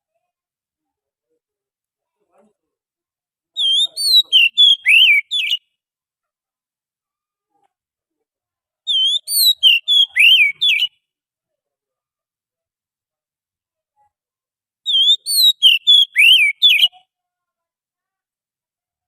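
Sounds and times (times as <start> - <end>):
bird song whistled notes: 3.6 - 5.6, 8.9 - 11.0, 14.9 - 16.9.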